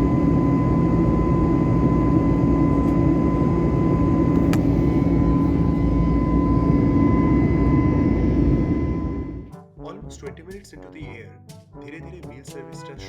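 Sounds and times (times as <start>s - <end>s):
airliner cabin engine rumble: 0.0s - 9.5s
thin steady whine: 0.0s - 9.6s.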